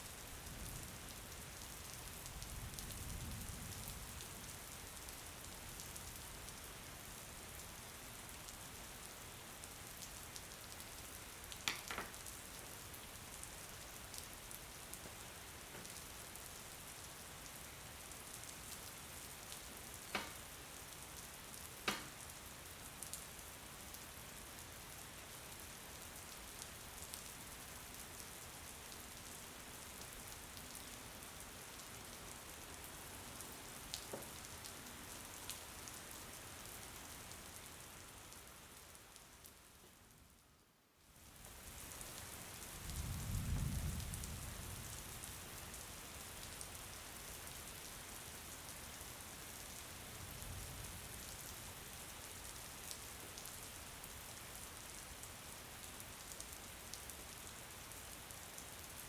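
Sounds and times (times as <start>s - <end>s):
rain hiss: 0.0s - 59.0s
sharp raindrop ticks: 11.5s - 12.4s, 19.5s - 20.6s, 21.6s - 22.3s.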